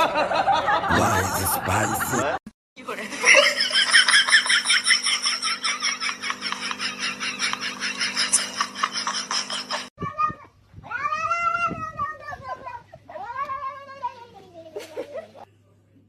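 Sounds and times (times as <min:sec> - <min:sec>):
rapid rhythmic laughing: 0:00.0 - 0:02.4, 0:03.2 - 0:09.9.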